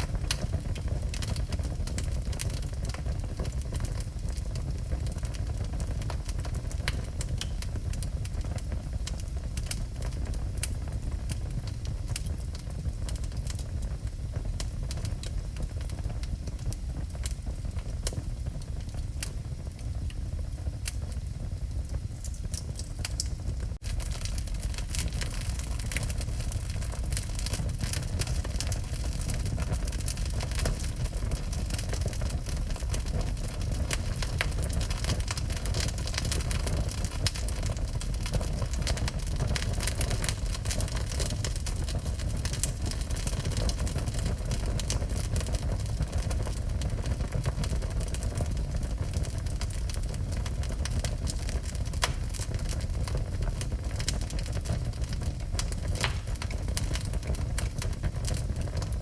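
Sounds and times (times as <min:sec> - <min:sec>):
low fire rumble: 0:00.0 - 0:59.0
wood fire crackling and popping: 0:00.0 - 0:59.0.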